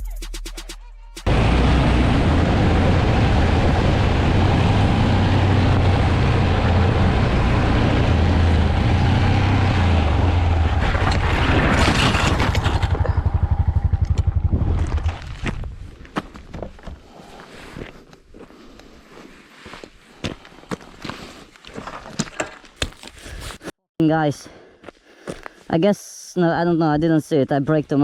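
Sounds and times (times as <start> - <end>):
motorcycle engine drone: 1.2 - 15.9
rushing road noise: 1.2 - 15.9.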